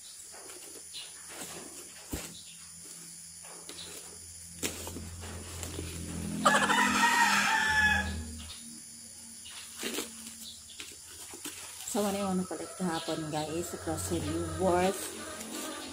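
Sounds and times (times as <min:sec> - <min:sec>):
rooster crowing: 0:06.0 - 0:08.5, 0:12.2 - 0:15.9.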